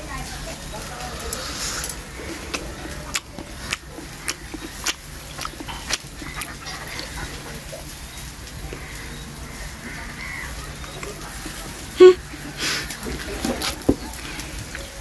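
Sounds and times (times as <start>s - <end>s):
steady low hum: 0.0s - 15.0s
wet chewing mouth clicks: 1.3s - 8.6s.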